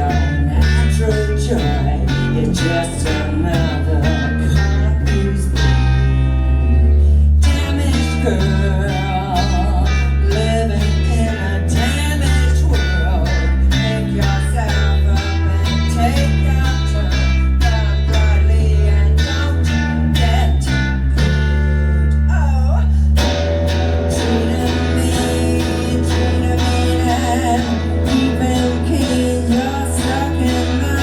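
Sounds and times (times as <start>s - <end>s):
bass guitar: 0.0s - 31.0s
electric guitar: 0.0s - 31.0s
person singing: 0.0s - 31.0s
drums: 23.2s - 31.0s.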